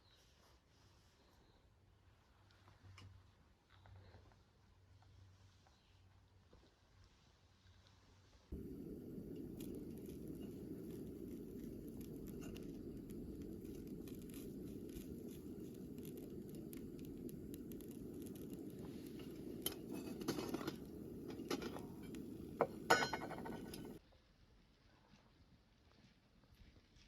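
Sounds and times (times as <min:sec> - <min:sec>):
steady low hiss: 0:08.5 - 0:24.0
small hard objects clinking: 0:08.6 - 0:24.0.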